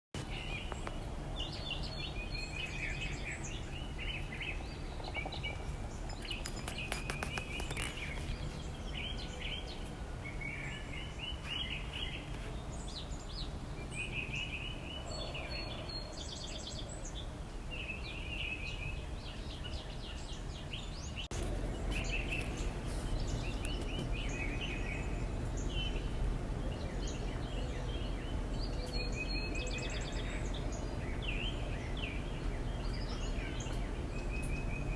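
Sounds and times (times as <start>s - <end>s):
songbirds chirping and singing: 0.2s - 34.9s
low background rumble: 20.8s - 34.9s.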